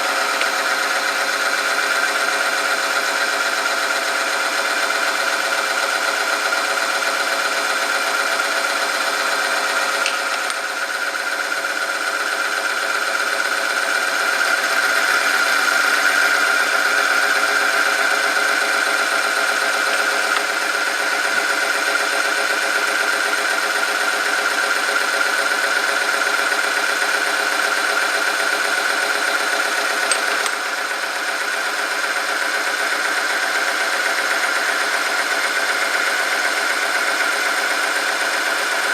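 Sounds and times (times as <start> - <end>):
machine motor whine: 14.2 - 22.9, 24.0 - 32.0.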